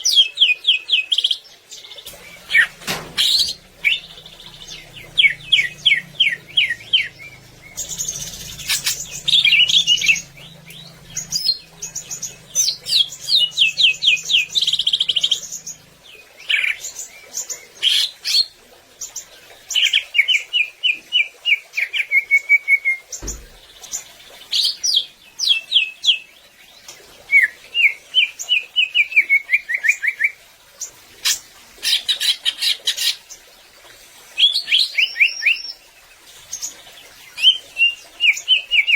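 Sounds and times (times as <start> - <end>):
bird singing varied song: 0.0 - 18.6, 34.4 - 38.9
dull knock: 23.2 - 23.7.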